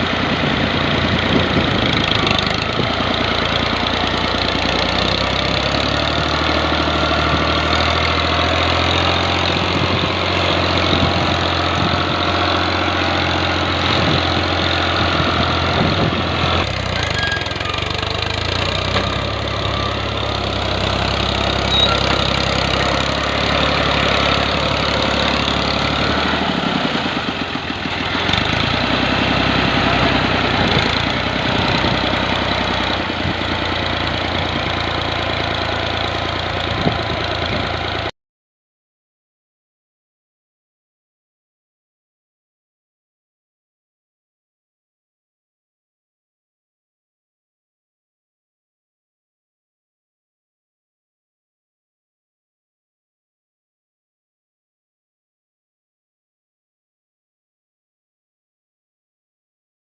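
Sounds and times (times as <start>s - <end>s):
tractor diesel engine: 0.0s - 38.1s.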